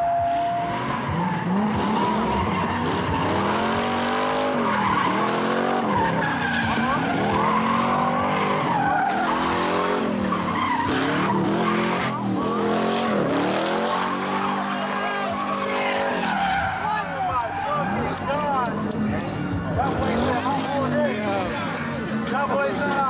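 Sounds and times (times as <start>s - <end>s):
car engine revving: 0.0s - 23.0s
tyres squealing: 0.0s - 23.0s.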